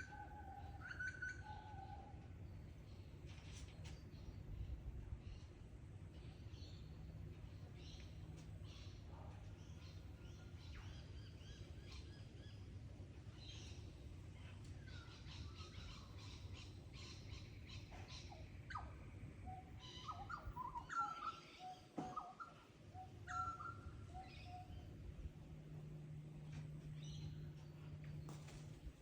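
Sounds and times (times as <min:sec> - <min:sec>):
birds chirping and trilling: 0:00.0 - 0:29.0
low steady hum: 0:00.0 - 0:29.0
faint low rumble: 0:22.7 - 0:29.0.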